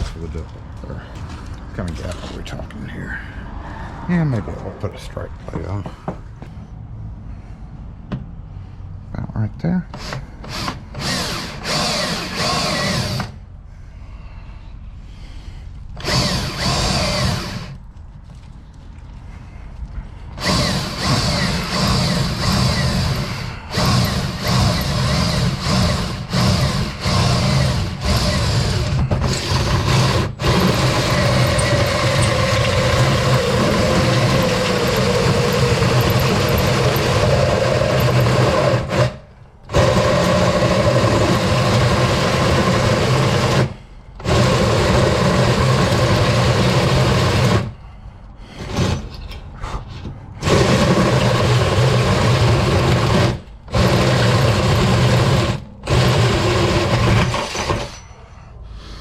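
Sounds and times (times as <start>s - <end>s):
power drill boring through steel: 9.9s - 13.4s, 16.0s - 17.8s, 20.4s - 47.7s, 50.4s - 58.2s.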